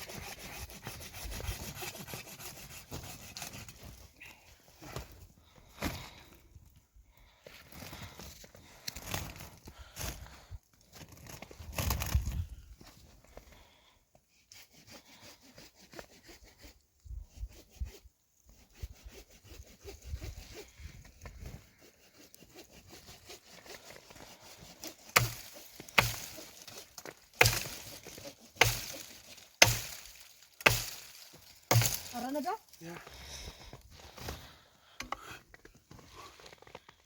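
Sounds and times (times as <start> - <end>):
axe chopping wood: 25.0 - 32.2.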